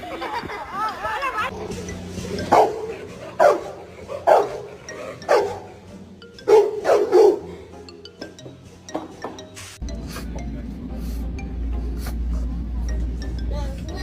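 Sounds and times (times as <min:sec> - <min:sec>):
dog barking: 0:02.5 - 0:04.7, 0:05.3 - 0:05.7, 0:06.5 - 0:07.5.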